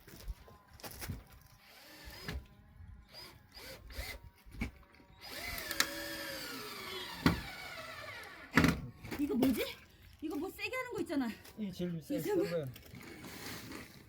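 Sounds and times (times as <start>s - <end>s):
power drill driving a screw: 1.6s - 2.5s, 3.1s - 4.2s, 5.2s - 8.8s.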